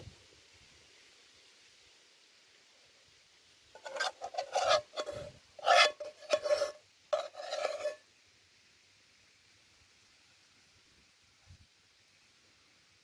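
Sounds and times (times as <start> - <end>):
utensil scraping metal cookware: 3.8 - 8.0.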